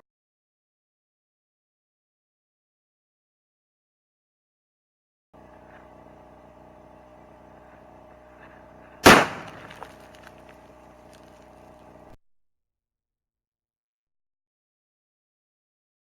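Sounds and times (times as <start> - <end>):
faint steady hum: 5.4 - 12.2
rifle shot: 8.9 - 10.6.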